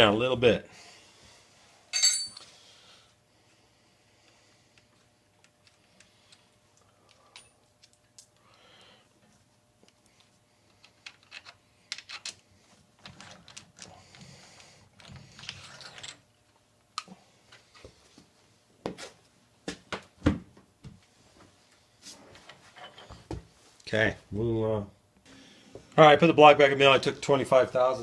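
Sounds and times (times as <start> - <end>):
metal parts and tools clinking: 1.9 - 2.5.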